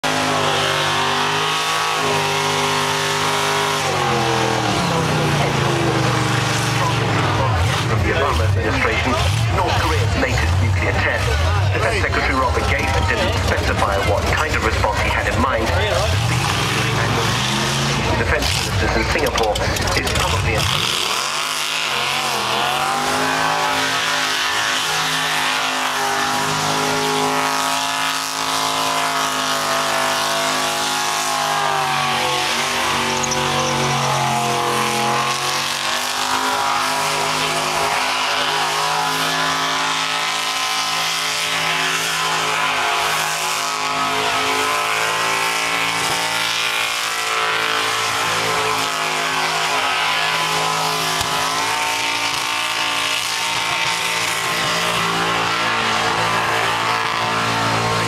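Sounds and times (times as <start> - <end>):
car engine revving: 0.0 - 58.0
tyres squealing: 15.6 - 58.0.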